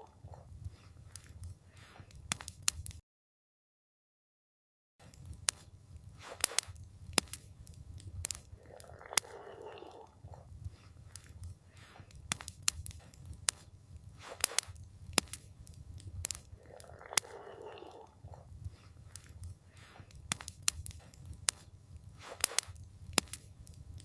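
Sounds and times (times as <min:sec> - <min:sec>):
campfire crackling and popping: 0:00.0 - 0:03.0, 0:05.0 - 0:24.0
low rumble of burning wood: 0:00.1 - 0:03.0, 0:05.0 - 0:24.0
soft hiss: 0:05.0 - 0:08.7, 0:18.6 - 0:24.0.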